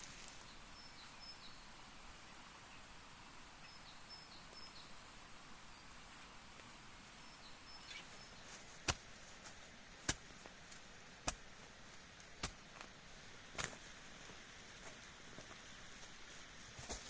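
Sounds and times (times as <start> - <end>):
forest ambience: 0.0 - 17.0
high thin bird calls: 0.3 - 8.6.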